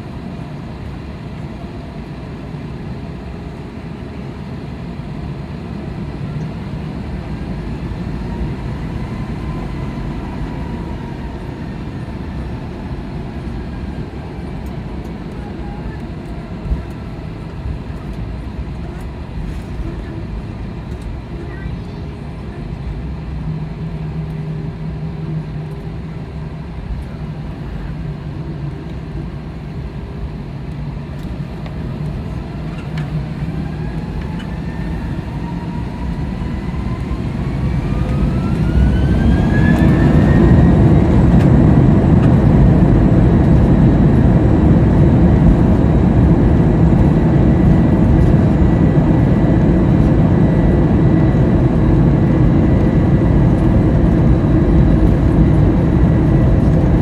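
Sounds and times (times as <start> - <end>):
jet engines spooling up: 31.2 - 57.0.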